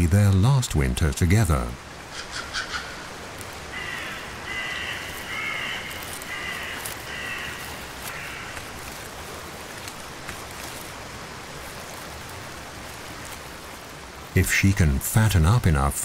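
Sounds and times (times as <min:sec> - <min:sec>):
steady background hiss: 0:00.0 - 0:16.0
bird harsh calls: 0:02.0 - 0:09.1.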